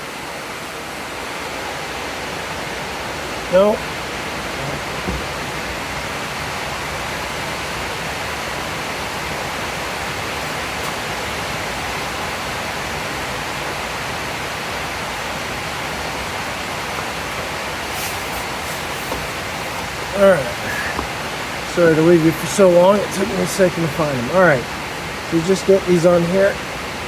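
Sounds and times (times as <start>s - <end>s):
heavy rain hissing: 0.0s - 27.0s.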